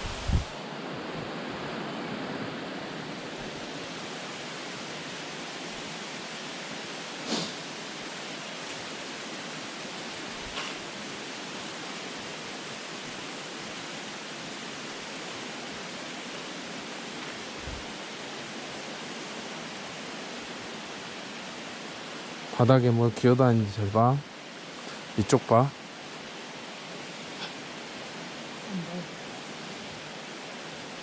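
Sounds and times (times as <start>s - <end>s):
steady hiss: 0.0s - 31.0s.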